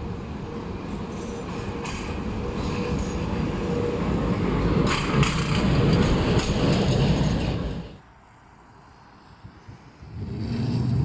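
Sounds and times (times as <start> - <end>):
tram rumbling on rails: 0.0 - 8.1
wheels clacking over track: 4.8 - 7.8.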